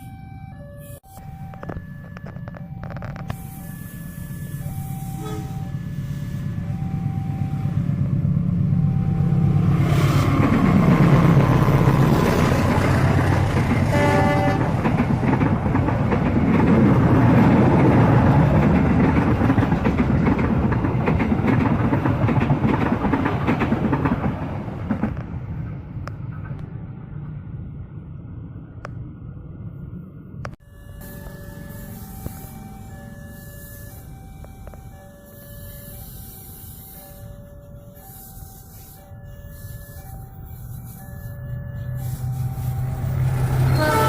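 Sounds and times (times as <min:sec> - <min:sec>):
level crossing alarm tones: 0:00.0 - 0:15.8, 0:30.6 - 0:44.0
locomotive engine rumbling: 0:00.9 - 0:44.0
train horn blast: 0:05.1 - 0:05.7, 0:13.8 - 0:14.9, 0:43.3 - 0:44.0
carriages clattering over rail joints: 0:14.6 - 0:25.3.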